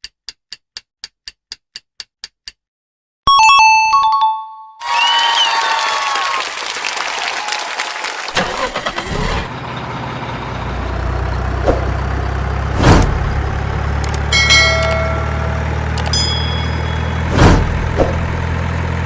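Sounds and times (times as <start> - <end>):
large engine running: 8.4 - 19.0
bright chime: 14.3 - 17.3
sharp knocks: 16.6 - 18.4.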